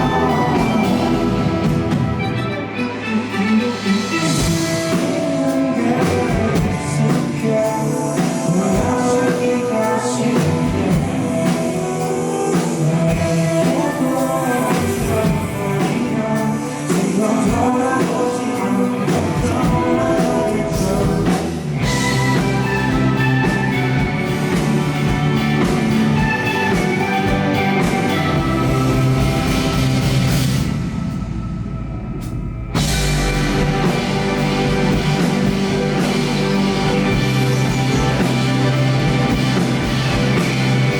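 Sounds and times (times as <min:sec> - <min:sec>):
person singing: 0:00.0 - 0:30.3
rock band playing live: 0:00.0 - 0:31.8, 0:32.7 - 0:40.9.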